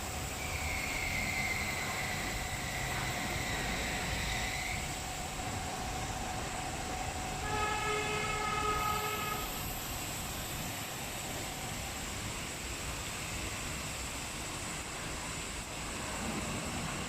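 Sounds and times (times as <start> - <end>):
car wash machinery whine: 0.0 - 17.0
horn-like chord: 7.4 - 9.5.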